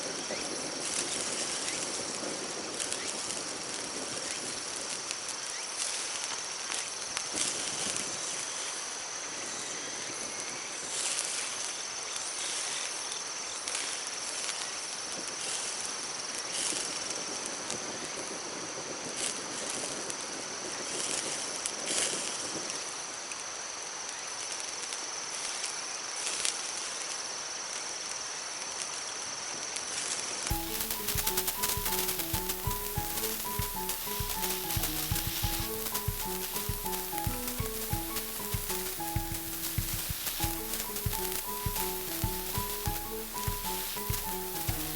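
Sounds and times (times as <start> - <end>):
insects buzzing: 30.5 - 44.9.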